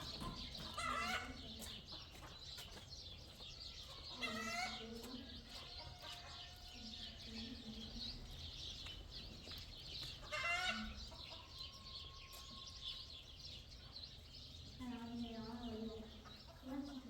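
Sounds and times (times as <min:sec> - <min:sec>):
chickens clucking and chirping: 0:00.0 - 0:17.0.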